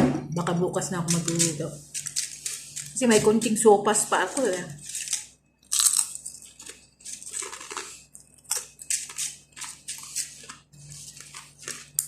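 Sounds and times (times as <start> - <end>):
chewing crunchy flatbread: 4.8 - 12.0.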